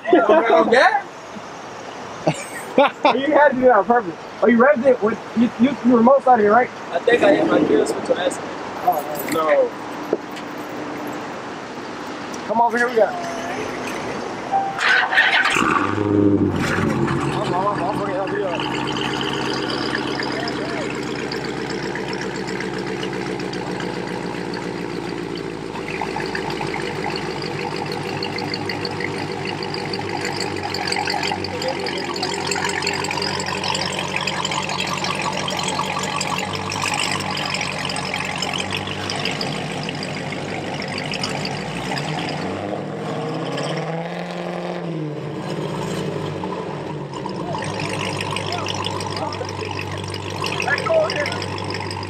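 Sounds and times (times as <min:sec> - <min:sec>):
car engine running: 0:13.5 - 0:52.0.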